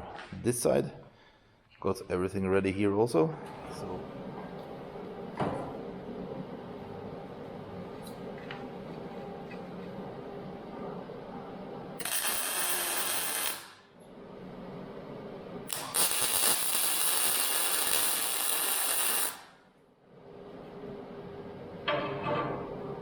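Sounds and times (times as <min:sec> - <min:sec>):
arc welding hiss: 0:12.0 - 0:13.8, 0:15.7 - 0:19.6.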